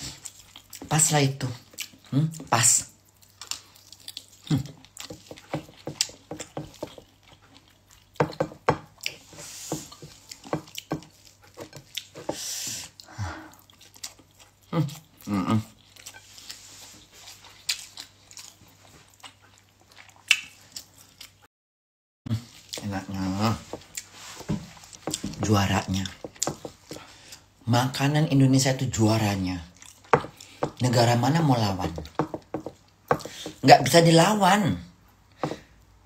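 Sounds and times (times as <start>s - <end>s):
person chewing: 0.0s - 21.5s, 22.3s - 27.6s, 29.7s - 33.6s
breathy hisses: 12.3s - 13.6s
wet lip smacks: 20.2s - 20.6s.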